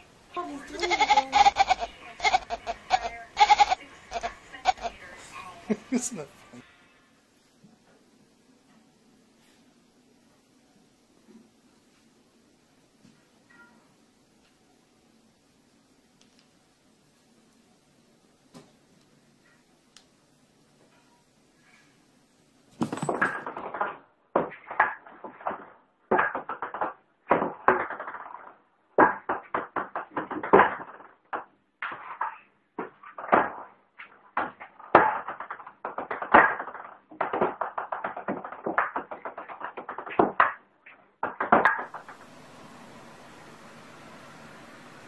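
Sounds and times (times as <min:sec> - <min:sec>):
object rattling on hard surface: 0:22.8 - 0:24.0
steady hiss: 0:41.9 - 0:45.0.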